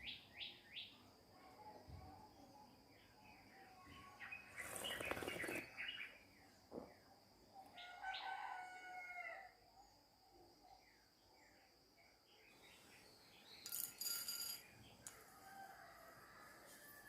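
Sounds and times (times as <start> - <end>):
bird chirps: 3.8 - 6.6.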